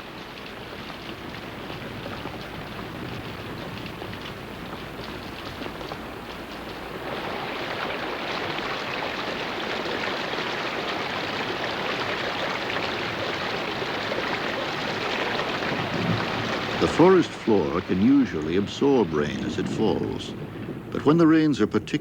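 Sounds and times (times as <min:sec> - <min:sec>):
heavy rain: 0:00.0 - 0:22.0
running water: 0:00.0 - 0:22.0.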